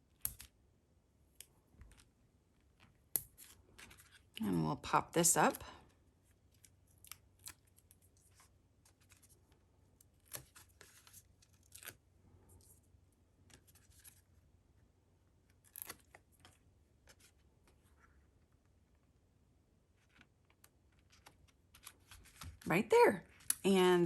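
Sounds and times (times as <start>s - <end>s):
paper rustling and clicking: 6.5s - 12.0s, 20.0s - 22.7s.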